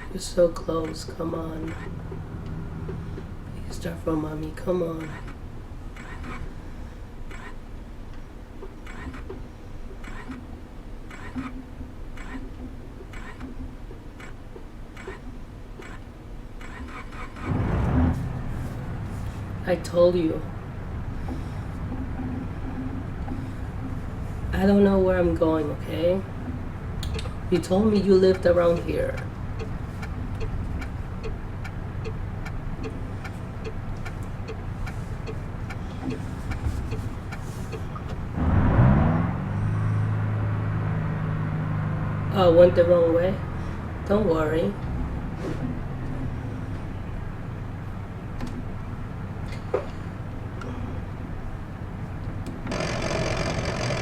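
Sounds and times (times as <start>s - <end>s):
steady low rumble: 0.0s - 16.6s, 17.3s - 52.7s
regular clicking: 0.8s - 3.3s, 7.3s - 10.5s, 11.1s - 17.5s, 26.4s - 27.4s, 28.0s - 38.2s, 52.2s - 54.0s
loud low rumble: 17.5s - 29.6s, 38.3s - 42.4s.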